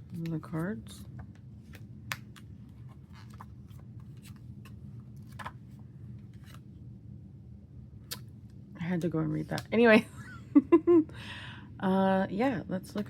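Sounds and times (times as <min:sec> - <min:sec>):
card and paper rustling: 0:00.0 - 0:06.6
faint low hum: 0:00.0 - 0:13.0.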